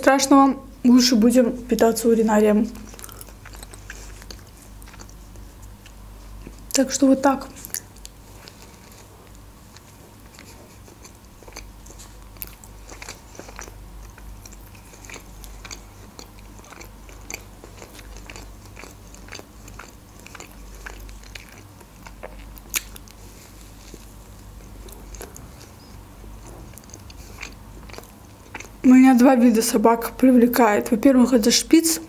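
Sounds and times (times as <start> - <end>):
person chewing pancakes: 2.7 - 6.8, 7.6 - 28.8.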